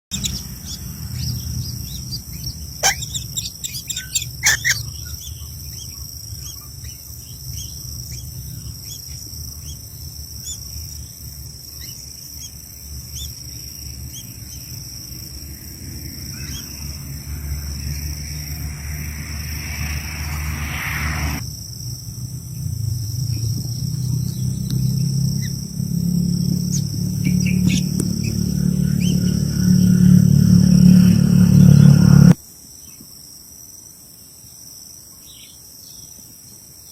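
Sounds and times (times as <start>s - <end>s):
high-pitched insect drone: 11.0s - 22.7s, 24.9s - 32.4s.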